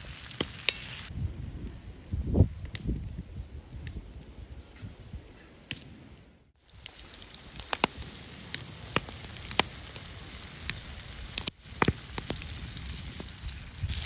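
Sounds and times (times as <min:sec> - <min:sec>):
oil popping and crackling: 0:00.0 - 0:01.1, 0:06.6 - 0:14.0
vegetables sizzling in oil: 0:00.0 - 0:01.1.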